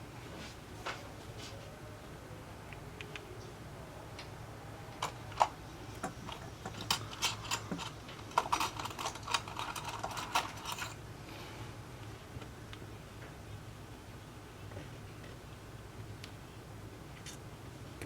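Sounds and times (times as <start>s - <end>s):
low steady hum: 0.0s - 18.0s
small tools clicking and scraping: 5.0s - 11.0s.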